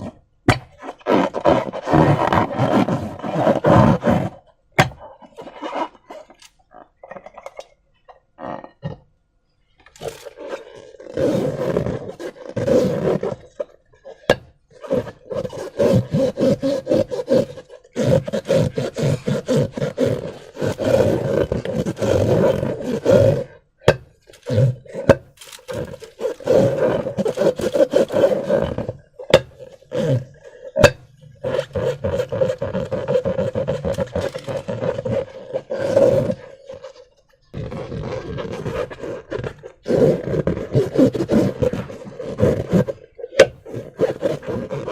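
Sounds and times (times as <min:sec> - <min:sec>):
slime squelching on balloons: 0:23.5 - 0:44.9.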